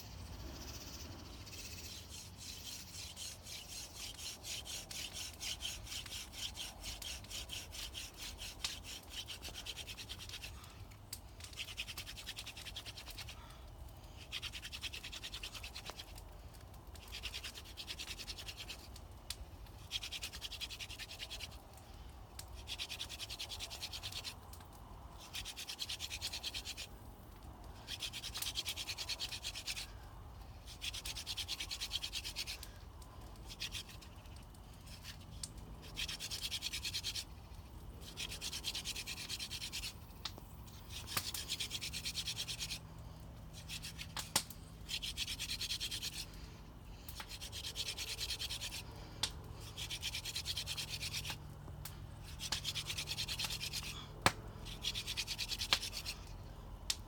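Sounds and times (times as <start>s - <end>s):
wooden spindle grinding on wood: 0.4s - 10.6s, 25.2s - 26.9s, 33.3s - 42.8s, 47.1s - 51.4s, 52.2s - 56.4s.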